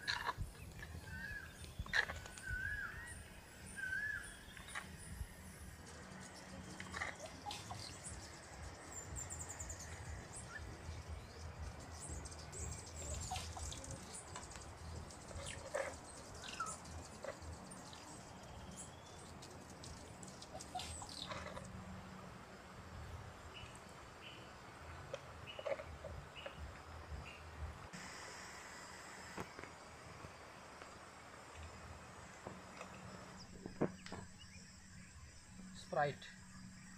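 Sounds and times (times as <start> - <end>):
birds chirping and calling: 0.0 - 21.7
low background noise: 0.0 - 36.9.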